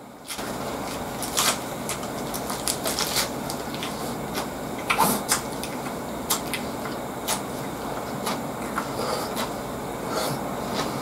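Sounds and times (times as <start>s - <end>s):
crisp crunching of leaves: 0.3s - 4.1s.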